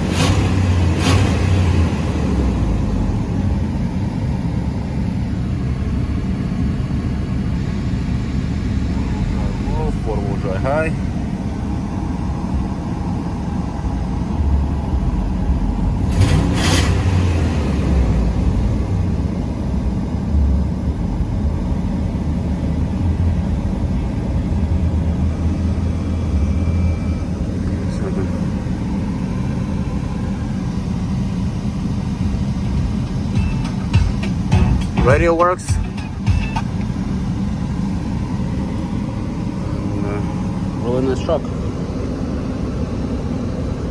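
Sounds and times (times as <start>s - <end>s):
engine idling with low rumble: 0.0s - 43.9s.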